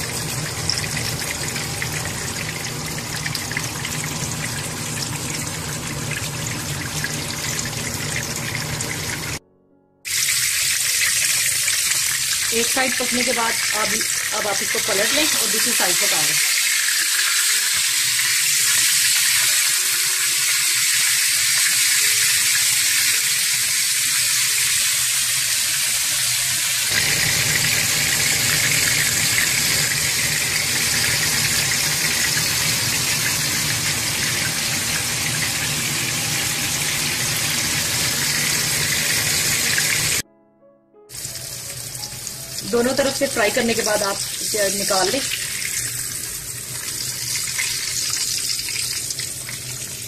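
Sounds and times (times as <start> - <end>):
kebabs sizzling in hot oil: 10.1 - 40.2, 41.1 - 50.0.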